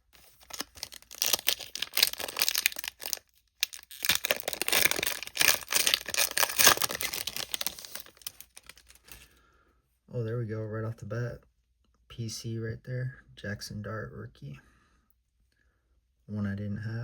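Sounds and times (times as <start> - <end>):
foil wrapper tearing and crinkling: 0.1 - 9.3.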